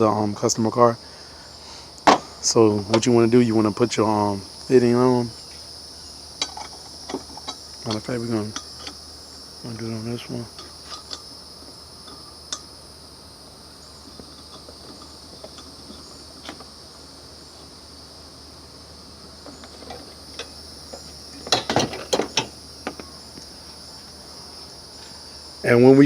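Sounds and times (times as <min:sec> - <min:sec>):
insect trill: 0:00.0 - 0:26.0
clicks and knocks of hose fittings: 0:19.4 - 0:23.5.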